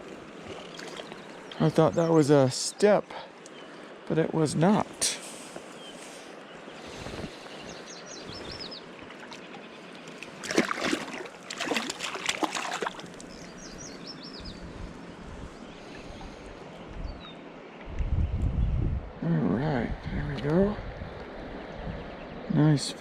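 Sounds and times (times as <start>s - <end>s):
songbird singing: 0.0s - 19.6s, 20.2s - 23.0s
splashing in water: 0.4s - 1.4s, 9.0s - 13.5s
river rushing: 8.0s - 13.4s.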